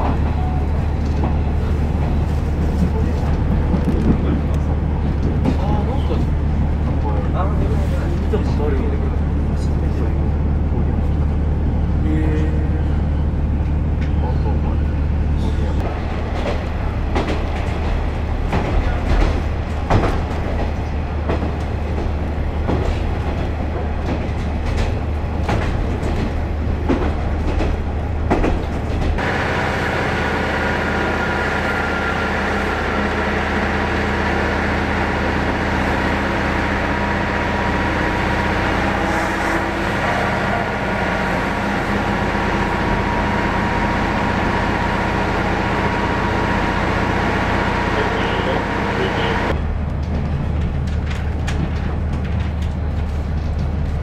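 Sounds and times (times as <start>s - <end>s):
railcar engine drone: 0.0s - 54.0s
wheels clacking over rail joints: 15.8s - 29.6s.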